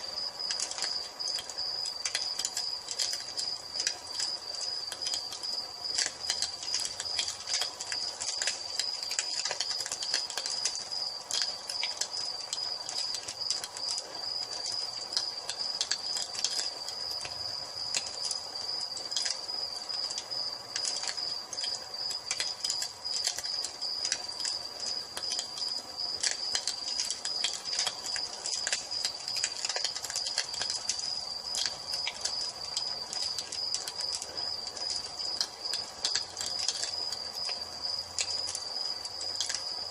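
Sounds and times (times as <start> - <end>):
cricket trill: 0.0 - 39.9
wood fire crackling and popping: 0.0 - 39.9.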